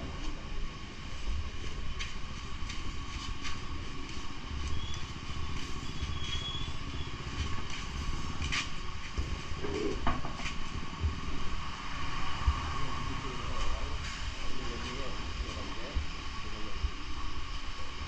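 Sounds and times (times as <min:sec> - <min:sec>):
motor vehicle rumble: 0:00.0 - 0:17.3.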